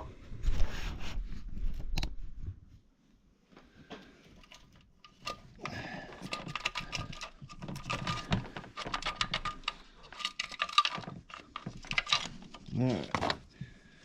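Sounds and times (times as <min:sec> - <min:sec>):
metal chain clinking and rattling: 0:04.4 - 0:13.5.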